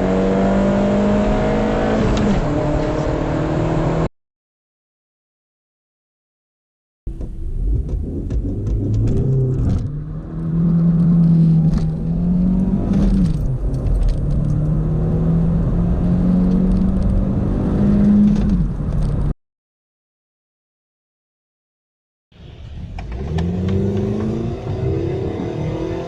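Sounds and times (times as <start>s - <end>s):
car engine accelerating: 0.0s - 4.1s, 7.1s - 19.3s, 22.4s - 26.0s.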